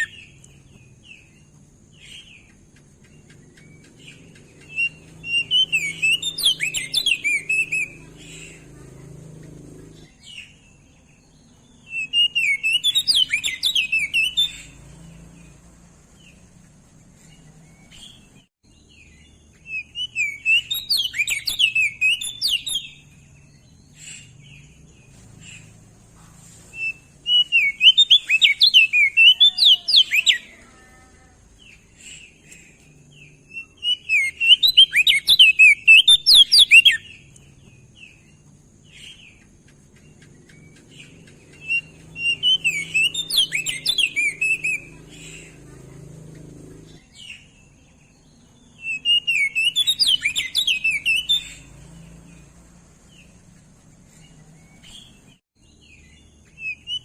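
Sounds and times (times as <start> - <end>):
bird warbling song: 0.0 - 57.0.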